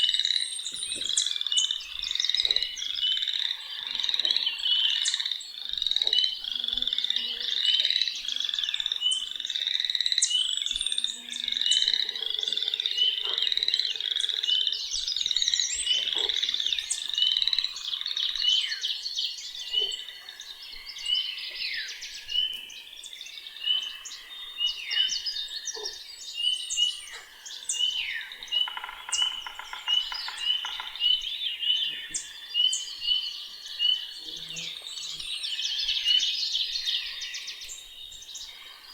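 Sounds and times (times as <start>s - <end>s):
frogs peeping: 0.0s - 18.8s, 26.7s - 37.6s.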